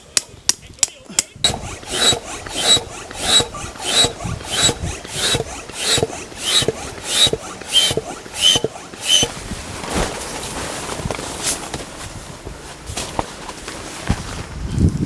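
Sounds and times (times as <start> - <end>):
hand air pump strokes: 1.4 - 10.3
thin air whistle: 7.2 - 9.4.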